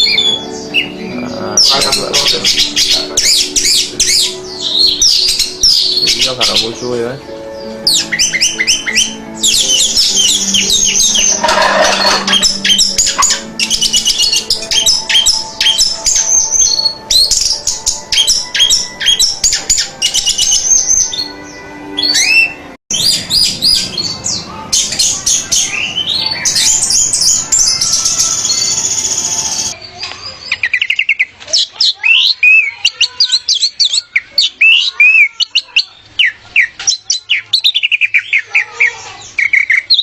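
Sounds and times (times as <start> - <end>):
thrush singing: 0.0 - 29.8.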